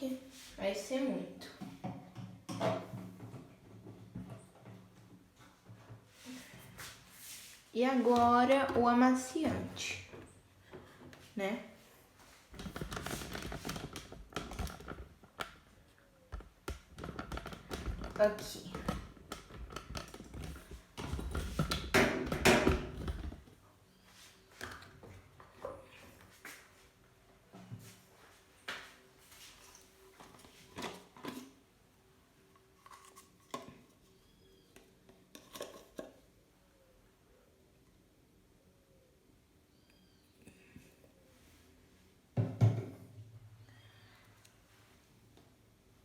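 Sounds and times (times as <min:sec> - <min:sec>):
small hard items clicking: 0:16.3 - 0:23.4.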